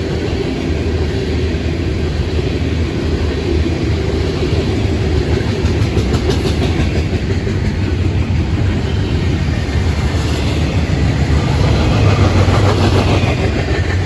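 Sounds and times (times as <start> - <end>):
train wheels rumbling on track: 0.0 - 14.0
wheels clacking over rail joints: 3.9 - 14.0.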